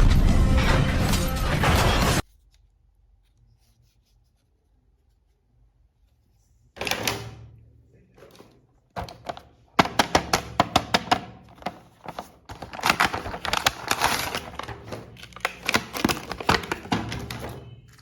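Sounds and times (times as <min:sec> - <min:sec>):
hard plastic clicking and tapping: 0:08.9 - 0:12.2
packaging rustling: 0:09.0 - 0:18.0.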